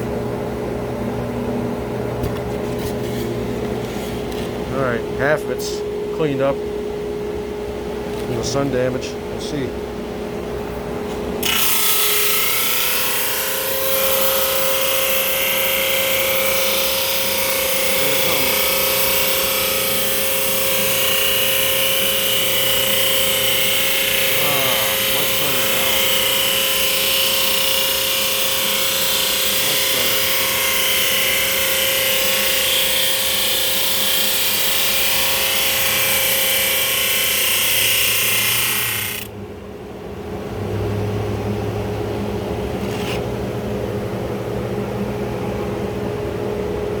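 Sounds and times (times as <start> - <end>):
machine hum: 0.0 - 47.0
drum sander grinding wood: 11.4 - 39.3.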